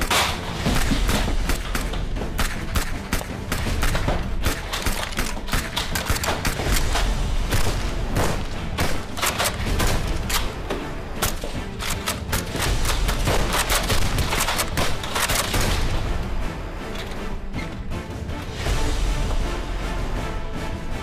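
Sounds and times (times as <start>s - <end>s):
rapid sharp gunshots: 0.0s - 16.2s
background music: 0.0s - 21.0s.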